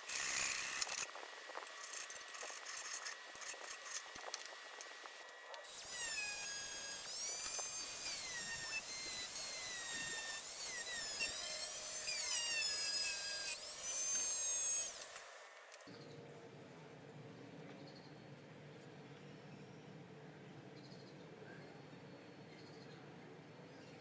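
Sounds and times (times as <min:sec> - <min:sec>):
high-speed power tool whining: 0:00.0 - 0:15.7.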